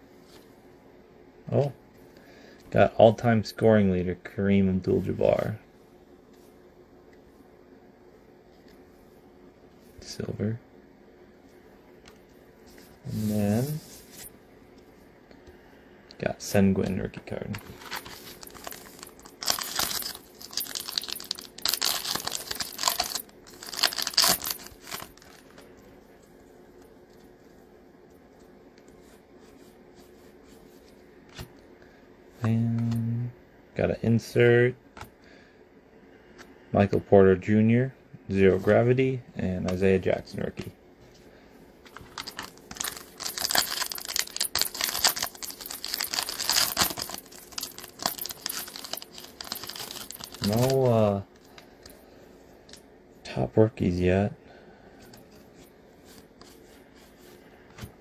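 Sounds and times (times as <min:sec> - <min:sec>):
wrapper tearing and crinkling: 0:17.8 - 0:25.4, 0:42.1 - 0:50.9.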